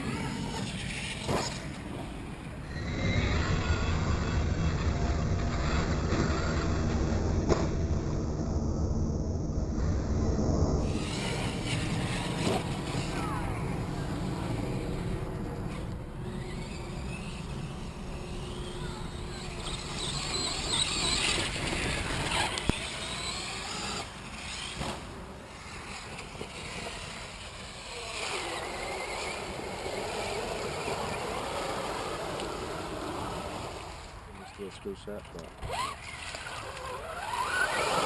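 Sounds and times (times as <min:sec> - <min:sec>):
steady rushing noise: 0:03.5 - 0:35.3
electric motor whining: 0:10.8 - 0:34.6, 0:35.3 - 0:38.0.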